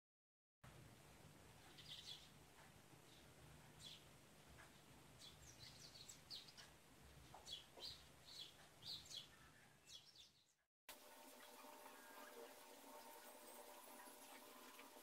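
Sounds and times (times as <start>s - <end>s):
faint bird chirping: 1.6s - 10.6s.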